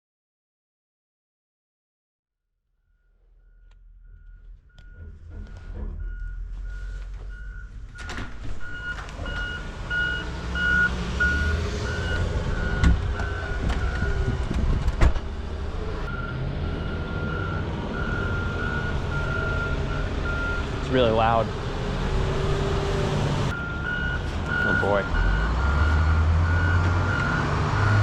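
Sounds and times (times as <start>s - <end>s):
vehicle warning chime beeping: 3.0s - 14.4s, 16.0s - 21.4s, 23.5s - 28.0s
car engine rumble: 3.0s - 28.0s.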